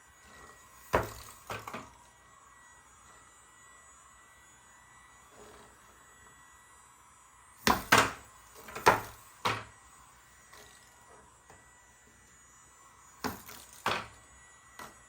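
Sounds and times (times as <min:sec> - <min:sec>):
air hockey puck and mallets clacking: 0:07.7 - 0:09.7.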